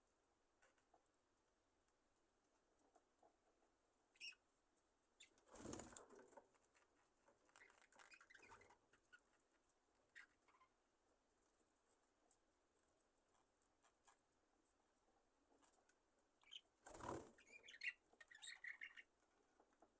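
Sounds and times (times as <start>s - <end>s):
soft rustles and ticks: 0.1s - 4.0s, 4.6s - 17.1s, 19.0s - 19.9s
bird wings flapping: 5.5s - 6.0s, 16.9s - 17.3s.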